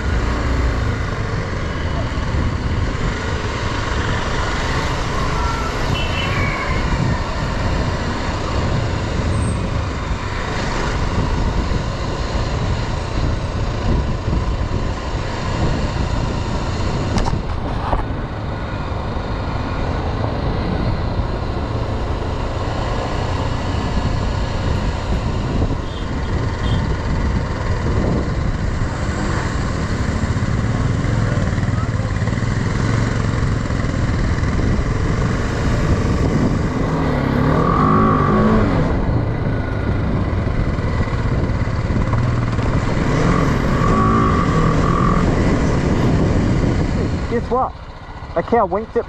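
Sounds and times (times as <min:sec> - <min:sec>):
wind and road noise: 0:00.0 - 0:49.0
motorcycle engine running: 0:23.1 - 0:49.0.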